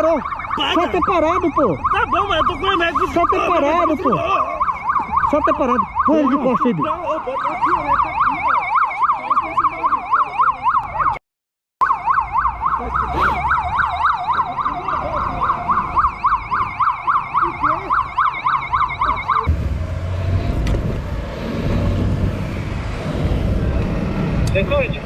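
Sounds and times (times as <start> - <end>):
police siren yelping: 0.0 - 11.2, 11.8 - 19.5
vehicle and road rumble: 0.0 - 11.2, 11.8 - 25.0.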